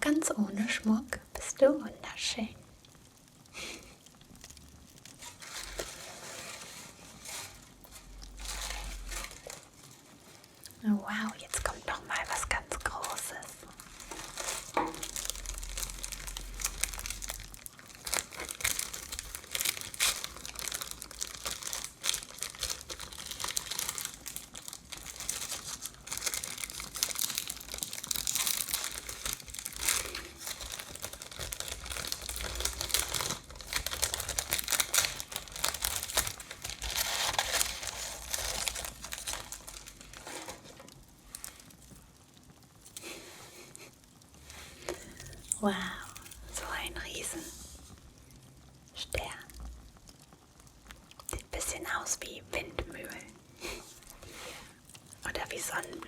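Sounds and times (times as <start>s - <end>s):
wrapping crackling and rustling: 0.0s - 56.0s.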